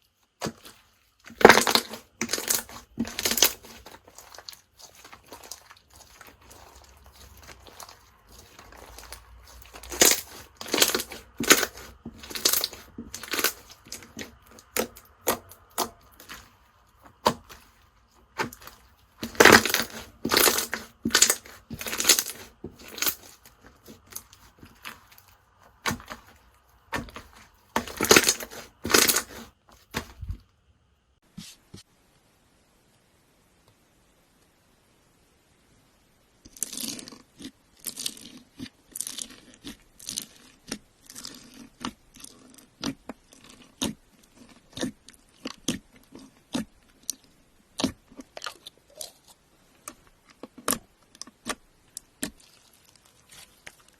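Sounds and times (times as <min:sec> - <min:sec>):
slime squishing: 0:00.0 - 0:30.5, 0:36.5 - 0:53.9
slime crackling crunches: 0:00.2 - 0:30.4.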